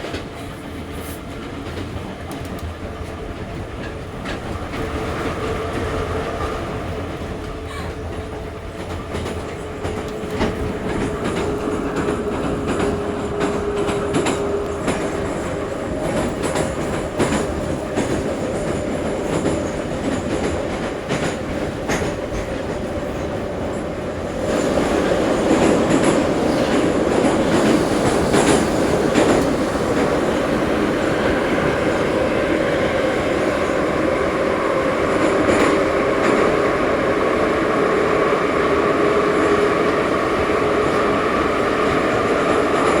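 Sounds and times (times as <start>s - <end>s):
metro train rumble and hum: 0.0s - 43.0s.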